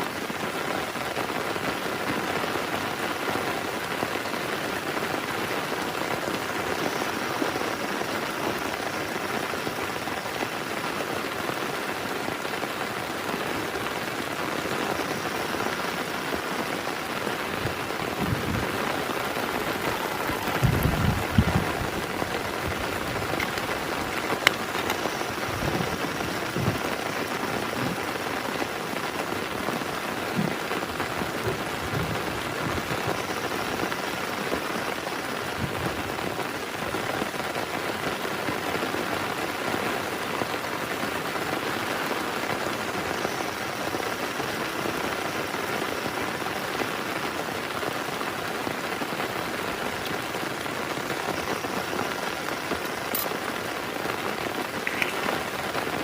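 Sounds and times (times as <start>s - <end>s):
heavy rain on a tent: 0.0s - 56.0s
low thuds: 20.5s - 21.9s.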